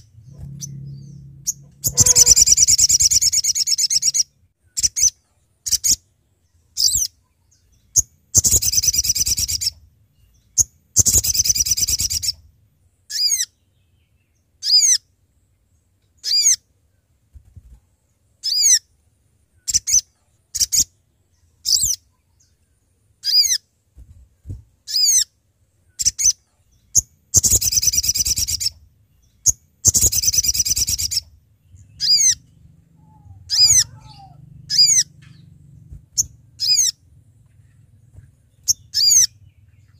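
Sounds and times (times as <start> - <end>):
bird harsh chattering call: 0.0 - 4.2, 33.0 - 35.1, 36.2 - 37.0, 38.7 - 39.5
bird short high falling notes: 0.1 - 3.3.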